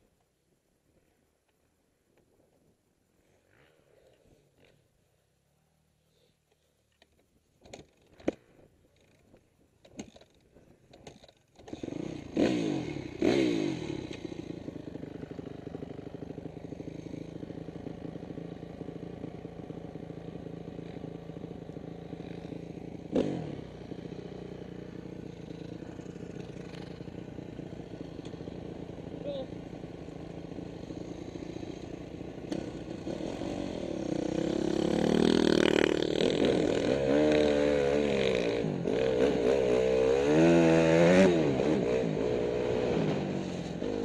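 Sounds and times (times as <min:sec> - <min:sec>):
dirt bike engine revving: 0:11.6 - 0:44.0.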